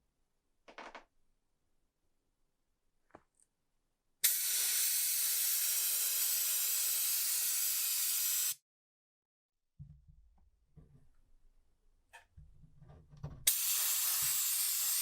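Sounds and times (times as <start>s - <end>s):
pressurised spray hissing: 4.2s - 8.6s, 13.5s - 15.0s.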